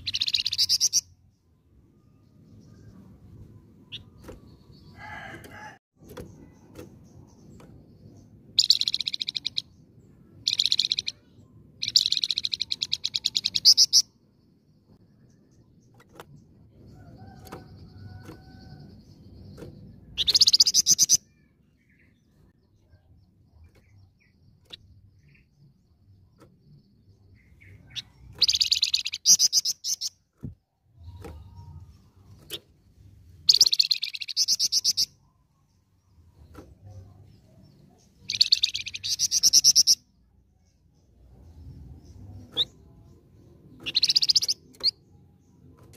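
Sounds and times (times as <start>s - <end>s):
songbird singing rapid high notes: 0.0s - 1.2s, 8.5s - 14.1s, 26.7s - 30.2s, 33.4s - 35.3s, 38.2s - 40.2s, 43.7s - 45.1s.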